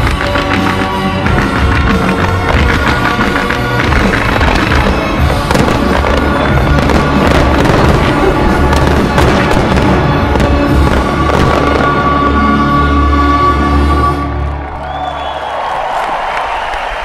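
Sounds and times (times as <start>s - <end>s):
fireworks bangs and crackles: 0.0s - 13.4s
loud music: 0.0s - 14.7s.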